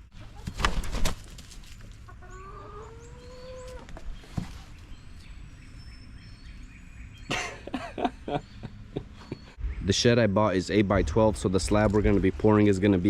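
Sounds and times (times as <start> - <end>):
chicken calling: 2.0 - 4.0.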